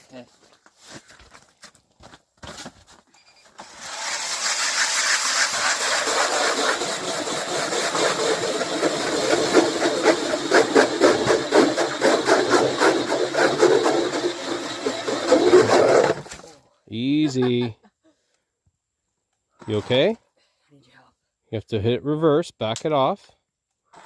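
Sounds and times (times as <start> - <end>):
electric ice auger drilling: 3.5 - 16.5.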